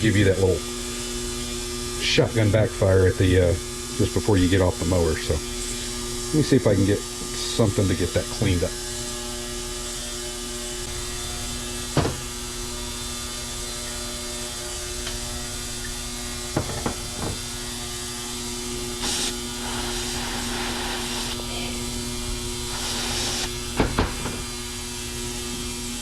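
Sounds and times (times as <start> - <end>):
electrical hum: 0.0 - 26.0
aerosol spray hissing: 18.6 - 24.6.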